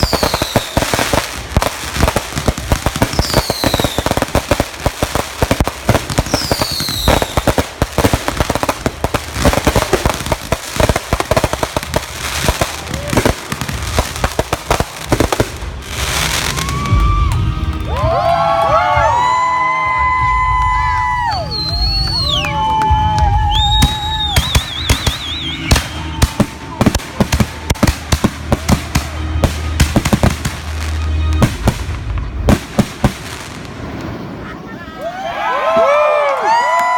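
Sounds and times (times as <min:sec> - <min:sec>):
falling firework whistle: 0:00.0 - 0:01.2, 0:02.9 - 0:04.5, 0:06.2 - 0:07.6, 0:16.0 - 0:31.7
fireworks bangs and crackling: 0:00.0 - 0:36.9
people cheering and whooping: 0:01.8 - 0:04.8, 0:06.0 - 0:08.6, 0:11.4 - 0:13.9, 0:15.8 - 0:30.1, 0:34.4 - 0:36.9.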